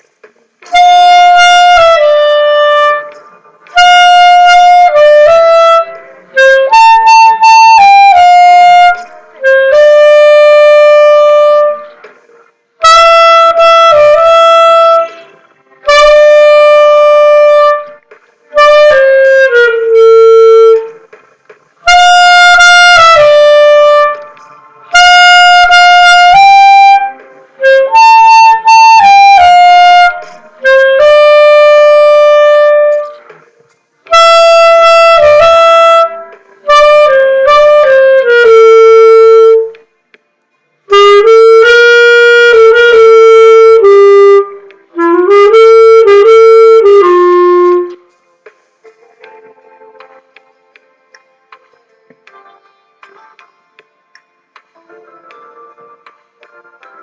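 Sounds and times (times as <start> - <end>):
solo clarinet melody: 0.6 - 12.0, 12.8 - 21.0, 21.8 - 33.2, 34.1 - 39.8, 40.9 - 48.1.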